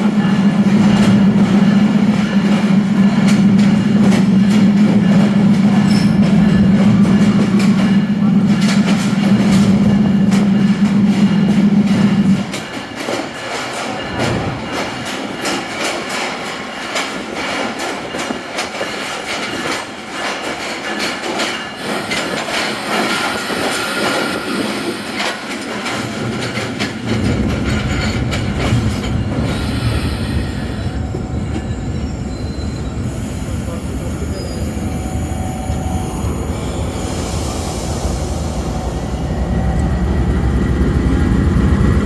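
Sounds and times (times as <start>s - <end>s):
train wheels clattering: 0.0s - 34.6s
high squeal: 29.6s - 40.9s
deep rumble: 30.9s - 42.0s.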